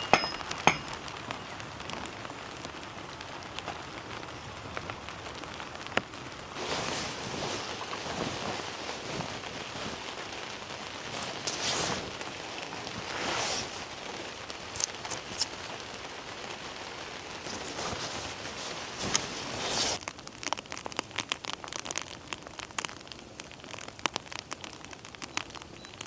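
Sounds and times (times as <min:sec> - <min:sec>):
steady rain hiss: 0:00.0 - 0:26.0
small ticks: 0:00.9 - 0:06.4, 0:13.8 - 0:17.7, 0:20.0 - 0:26.0.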